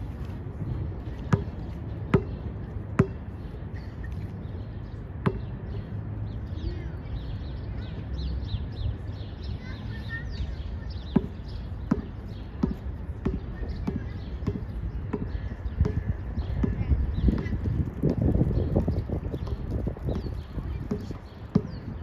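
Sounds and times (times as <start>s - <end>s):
birds chirping: 0.0s - 22.0s
wind rumble on microphone: 0.0s - 22.0s
basketball bouncing: 1.3s - 2.4s, 3.0s - 3.2s, 5.2s - 5.5s, 11.2s - 22.0s.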